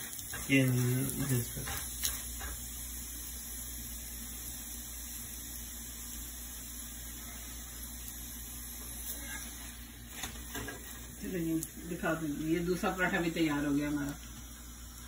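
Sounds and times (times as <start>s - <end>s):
flatbread sizzling on a hot griddle: 0.0s - 15.0s.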